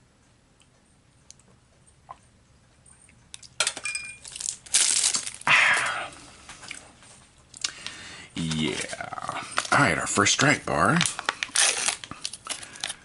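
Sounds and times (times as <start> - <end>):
packaging rustling and clinking: 3.6 - 5.5, 10.9 - 13.0.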